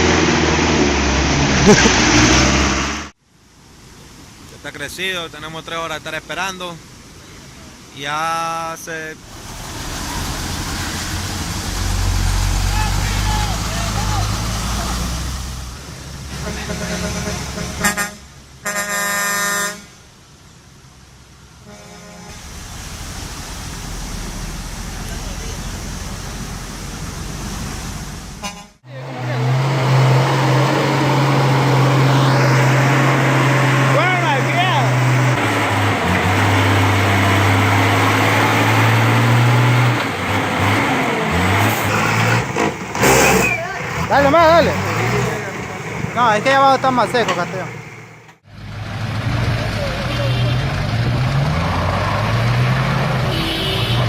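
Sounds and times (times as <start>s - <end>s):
vehicle engine noise: 0.0s - 4.8s, 5.4s - 54.0s
vehicle horn honking: 16.3s - 20.0s, 21.6s - 22.4s, 28.4s - 28.8s, 50.1s - 50.6s, 53.3s - 54.0s.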